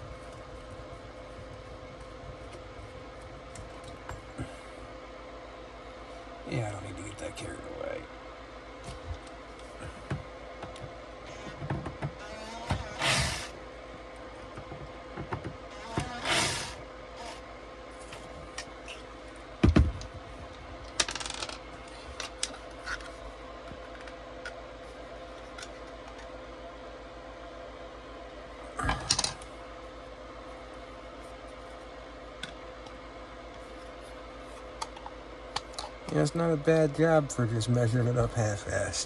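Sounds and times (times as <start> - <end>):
steady hum: 0.0 - 39.0.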